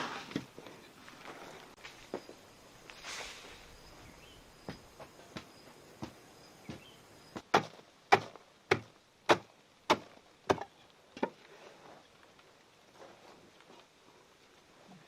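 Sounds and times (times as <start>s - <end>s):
wood being chopped: 5.4s - 11.4s.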